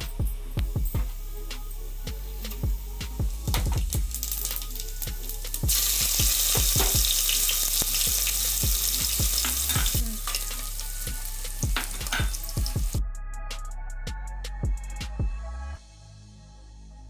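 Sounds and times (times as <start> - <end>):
background music with steady beat: 0.0 - 17.0
hot fat sizzling in a pan: 1.1 - 13.0.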